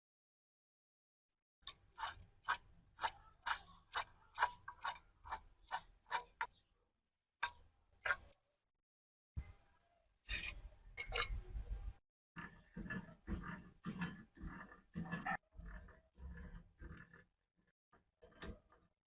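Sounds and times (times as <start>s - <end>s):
scraping strokes on metal: 1.7s - 6.6s, 10.3s - 11.7s, 12.4s - 19.0s.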